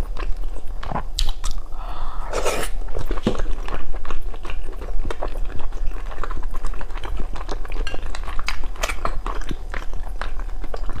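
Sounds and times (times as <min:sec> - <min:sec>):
wet chewing with squelches: 0:02.9 - 0:11.0.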